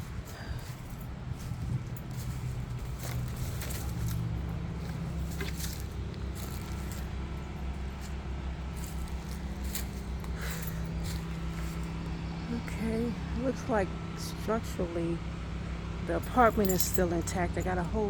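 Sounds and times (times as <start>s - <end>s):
low mechanical hum: 0.0s - 18.0s
light clicks and rustles: 0.2s - 7.3s, 8.8s - 12.0s.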